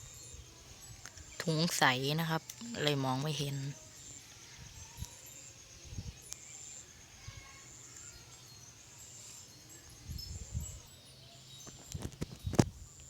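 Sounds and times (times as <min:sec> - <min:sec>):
wind gusts on microphone: 0:04.5 - 0:06.3, 0:09.8 - 0:10.9, 0:11.7 - 0:13.0.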